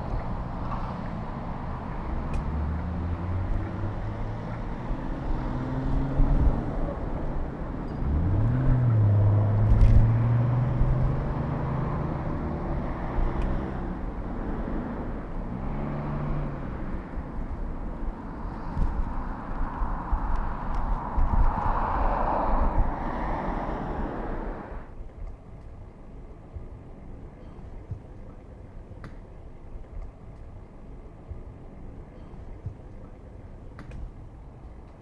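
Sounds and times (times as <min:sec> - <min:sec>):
car engines running: 0:00.0 - 0:35.0
road noise: 0:00.0 - 0:35.0
car engine speeding up: 0:02.0 - 0:07.3.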